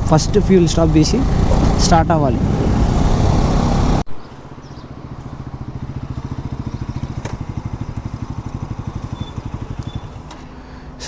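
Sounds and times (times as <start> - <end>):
motorcycle engine idling: 3.2 - 11.0.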